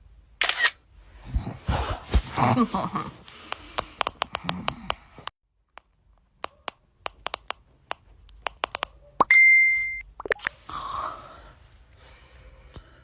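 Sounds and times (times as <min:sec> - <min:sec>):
camera shutter clicks: 0:00.4 - 0:00.8
high-pitched beep: 0:09.3 - 0:10.4.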